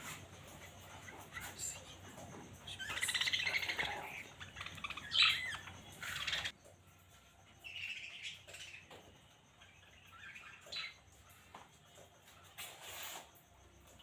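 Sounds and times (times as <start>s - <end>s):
budgerigars chirping: 2.7s - 6.5s.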